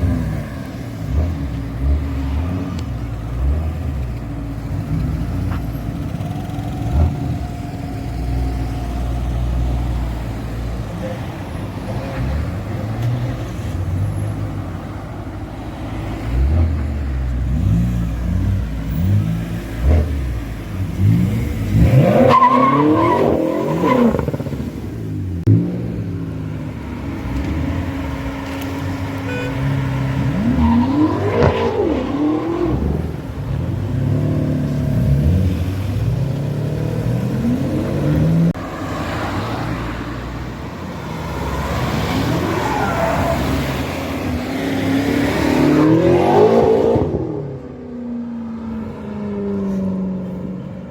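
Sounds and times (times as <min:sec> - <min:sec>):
car engine revving and accelerating: 0:15.7 - 0:47.9.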